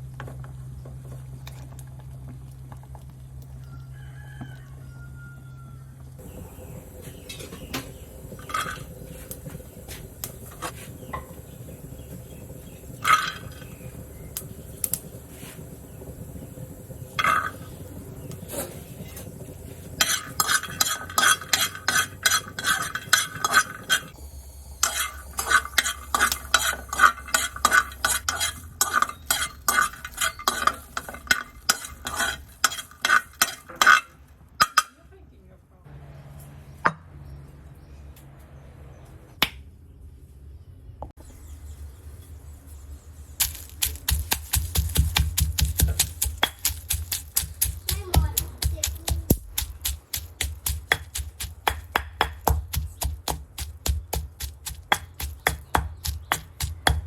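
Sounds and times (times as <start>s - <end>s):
utensils clinking against bowl: 7.3s - 9.4s, 17.2s - 17.8s, 19.9s - 24.2s, 24.8s - 35.0s.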